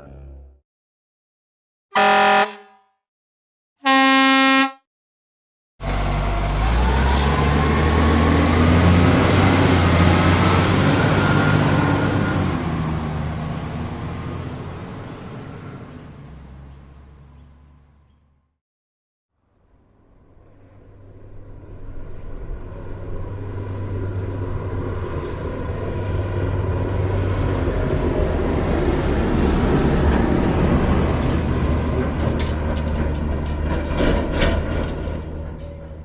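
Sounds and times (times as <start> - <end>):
vehicle engine humming: 5.8 - 18.5, 19.5 - 36.0.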